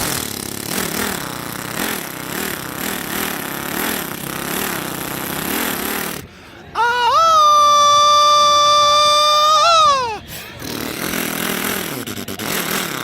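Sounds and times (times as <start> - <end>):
motorcycle engine running: 0.0 - 6.4, 10.6 - 13.0.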